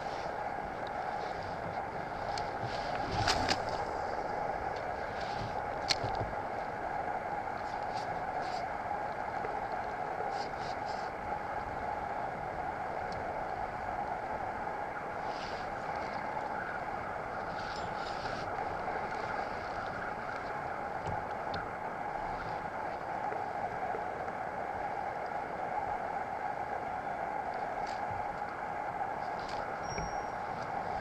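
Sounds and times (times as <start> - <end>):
kayak rushing through water: 0.0 - 31.0.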